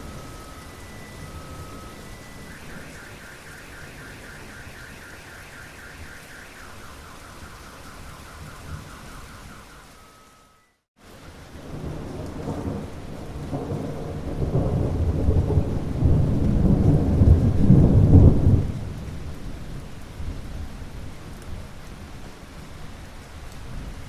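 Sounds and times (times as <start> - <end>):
thunder roll: 0.0 - 9.9, 11.6 - 19.0
steady rain: 0.0 - 24.0.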